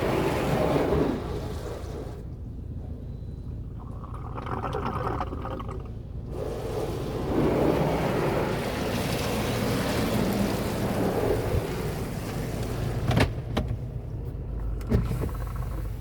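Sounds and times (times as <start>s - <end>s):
water spray drumming on car: 6.3s - 13.0s.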